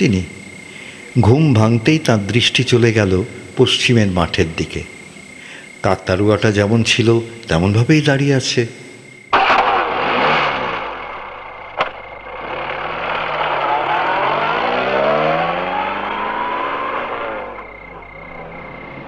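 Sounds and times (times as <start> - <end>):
car engine revving: 9.3 - 19.0
sharp click: 11.8 - 12.0.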